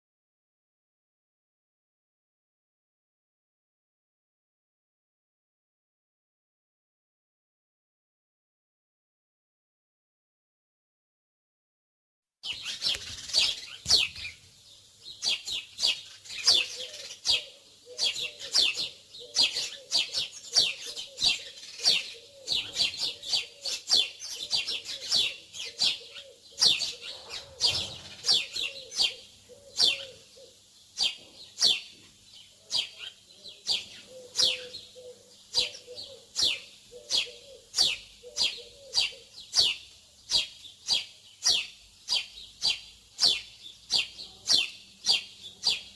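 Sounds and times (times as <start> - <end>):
songbirds chirping: 12.4 - 45.9.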